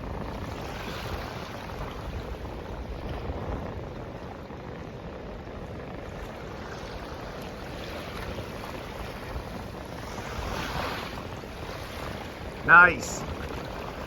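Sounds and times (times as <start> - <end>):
wind: 0.0 - 14.0
rushing water: 5.8 - 14.0.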